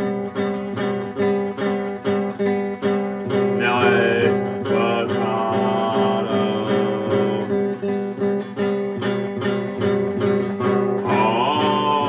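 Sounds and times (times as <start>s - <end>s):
guitar strumming chords: 0.0s - 12.0s.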